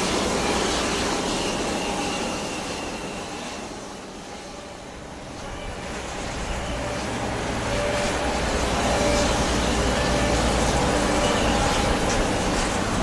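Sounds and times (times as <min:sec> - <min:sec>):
jet engines rumbling and whining: 0:00.0 - 0:13.0.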